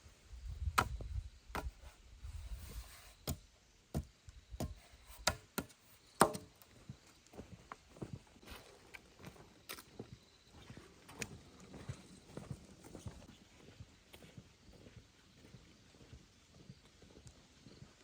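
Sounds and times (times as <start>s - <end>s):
sharp chopping strikes: 4.0s - 6.5s.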